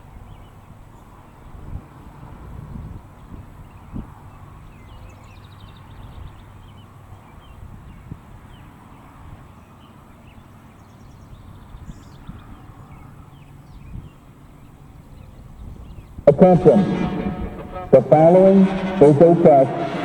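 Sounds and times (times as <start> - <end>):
wind rumble on microphone: 0.2 - 5.3.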